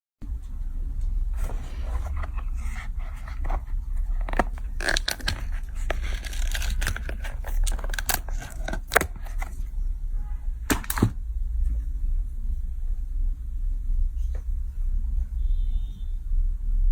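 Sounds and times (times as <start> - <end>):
steady low hum: 0.2 - 16.9
small objects clicking and rustling: 1.4 - 9.6.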